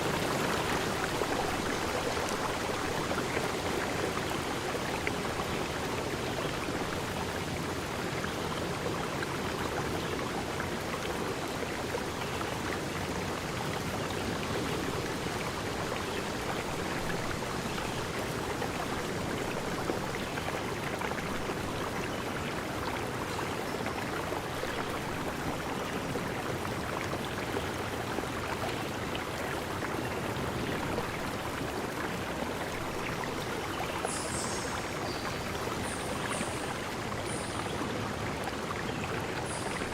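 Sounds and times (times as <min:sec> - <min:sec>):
water flowing: 0:00.0 - 0:39.9.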